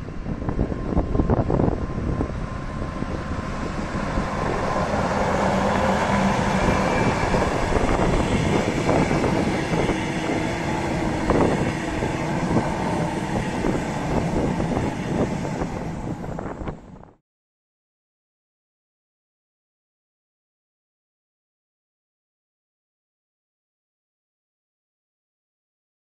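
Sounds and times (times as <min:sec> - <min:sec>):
train wheels rumbling on rails: 0:00.0 - 0:17.2.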